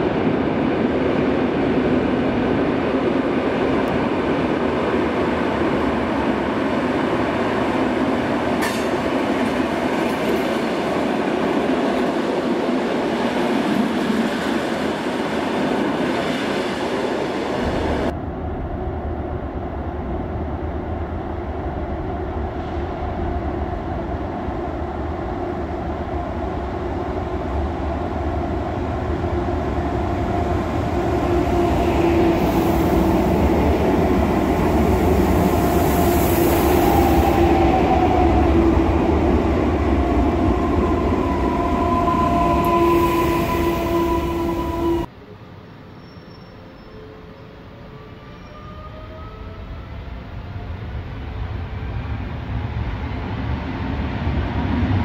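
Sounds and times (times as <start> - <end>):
falling whine of slowing train: 0.0 - 55.0
train rumble: 0.0 - 55.0
train wheels over rails: 3.6 - 18.1.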